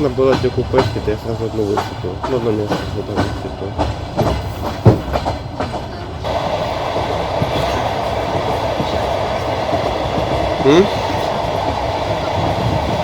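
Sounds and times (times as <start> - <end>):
train rolling along: 0.0 - 13.0
train wheels clacking over rail joints: 0.0 - 13.0.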